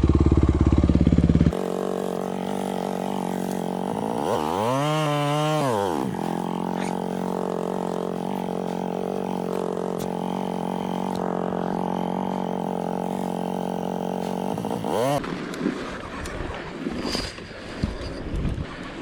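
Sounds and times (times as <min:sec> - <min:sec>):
motorcycle engine idling: 0:00.0 - 0:04.8, 0:06.0 - 0:15.2.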